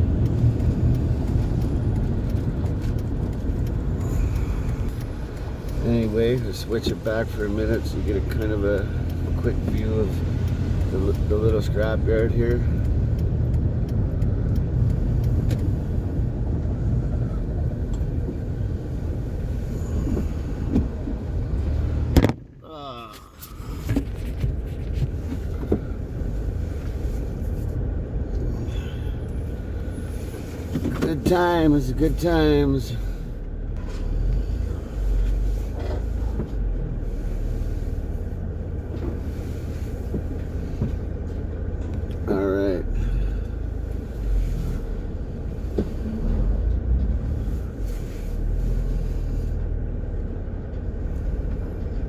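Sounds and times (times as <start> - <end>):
faint ticks: 0.0 - 22.0
van engine and road rumble: 0.0 - 52.0.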